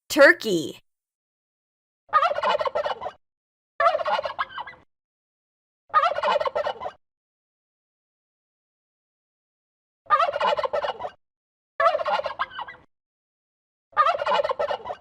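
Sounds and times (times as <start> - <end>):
turkey gobbling: 6.0 - 6.9, 10.1 - 11.1, 11.8 - 12.6, 14.0 - 15.0.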